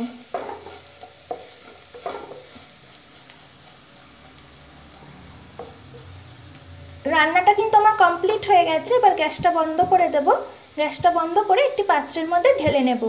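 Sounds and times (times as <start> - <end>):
utensil scraping a pan: 0.0 - 6.1
oil sizzling: 0.0 - 13.0.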